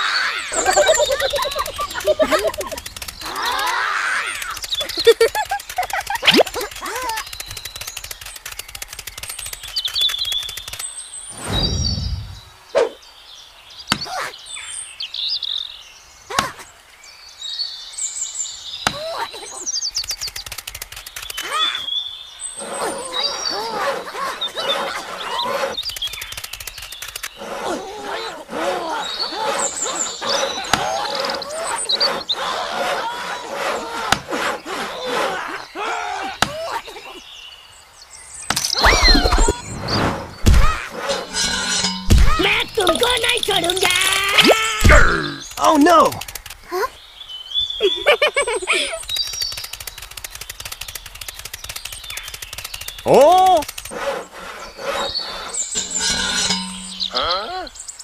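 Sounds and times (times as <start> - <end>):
cartoon warbling squeaks: 0.0 - 7.3, 38.7 - 46.9, 54.8 - 57.8
whistling glides: 0.0 - 13.0, 19.9 - 36.0, 38.7 - 44.9, 48.7 - 58.0
birds chirping: 0.0 - 58.0
fast rattle of clicks: 0.6 - 11.0, 19.9 - 21.6, 25.5 - 27.4, 45.4 - 46.7, 48.8 - 57.1
crashing and breaking clatter: 40.4 - 45.0.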